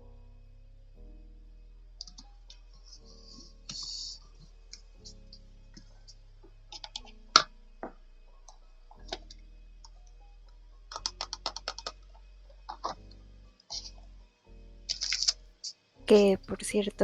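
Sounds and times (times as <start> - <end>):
soft background music: 0.0 - 17.0
paper rustling: 3.2 - 4.2, 14.9 - 15.4
stationery clicks and taps: 10.9 - 12.0.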